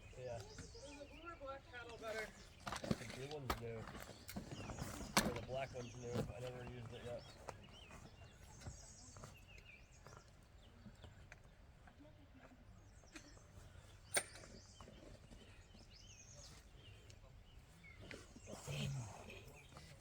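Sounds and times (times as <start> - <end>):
faint bird chirps: 4.1 - 20.0.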